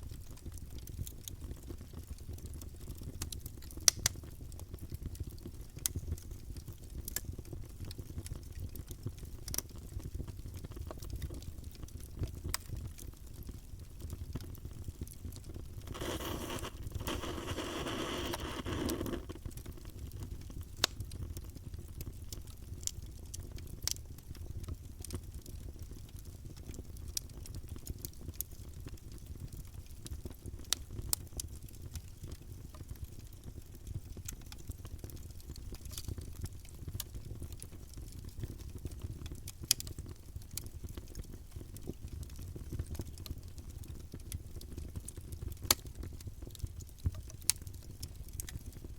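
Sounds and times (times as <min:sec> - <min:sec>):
campfire crackling: 0:00.1 - 0:48.9
fire hissing: 0:15.8 - 0:19.4.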